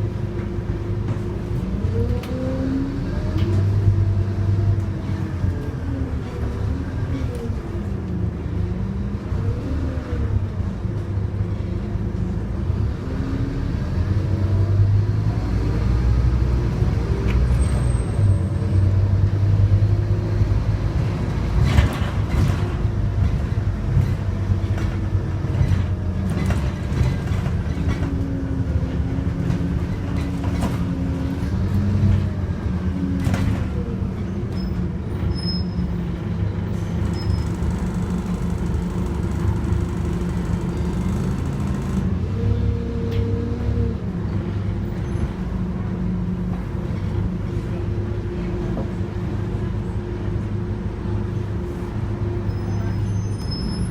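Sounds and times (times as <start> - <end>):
bus diesel engine running: 0.0 - 53.8
sharp knocks and rattles: 36.9 - 42.2.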